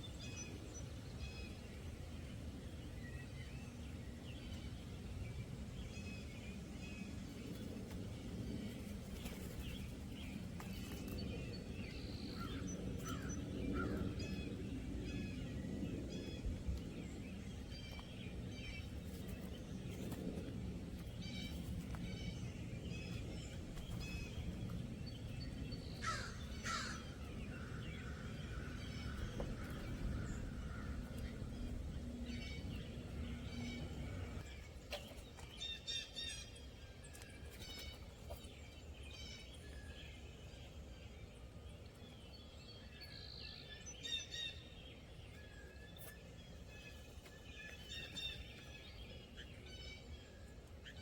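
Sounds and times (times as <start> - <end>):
steady low rumble: 0.0 - 35.4
birds chirping: 0.0 - 51.0
sharp bird calls: 21.1 - 36.7.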